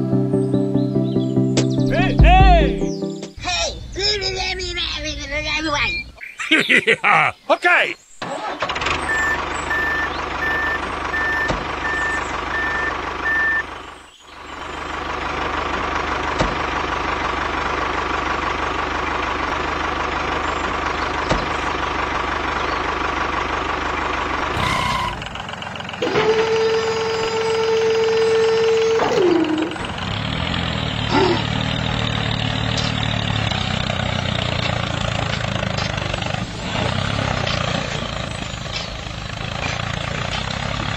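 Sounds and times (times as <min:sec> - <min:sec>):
tractor engine running: 0:00.0 - 0:06.8, 0:08.1 - 0:40.9
reversing alarm beeping: 0:09.0 - 0:13.7.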